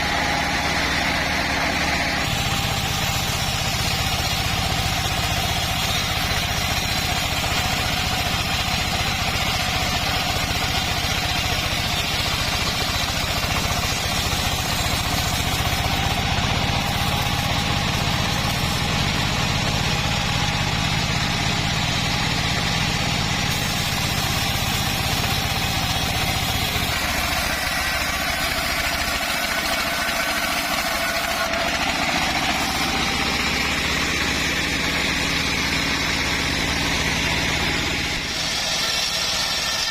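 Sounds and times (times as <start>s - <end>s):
bandsaw sawing: 0.0s - 39.9s
engine low hum: 0.0s - 39.9s.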